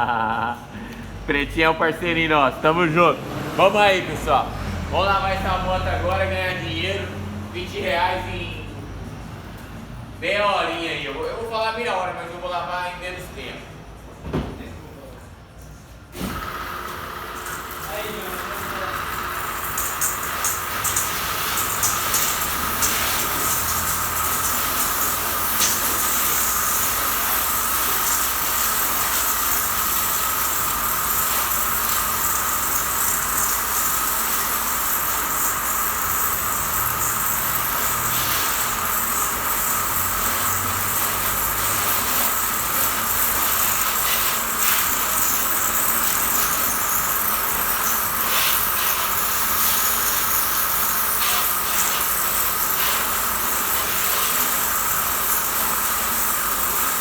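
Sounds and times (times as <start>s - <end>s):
pressure washer spraying water: 16.2s - 57.0s.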